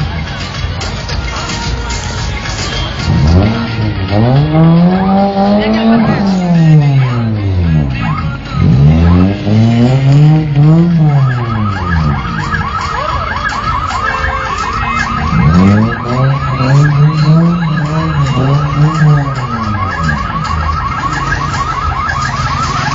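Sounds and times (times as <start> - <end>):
car engine revving: 2.9 - 22.9
fast high warble: 8.0 - 22.9.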